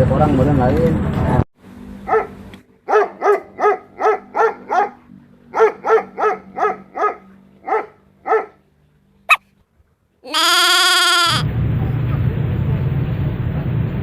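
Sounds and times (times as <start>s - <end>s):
dog barking: 2.1s - 2.3s, 2.9s - 8.6s.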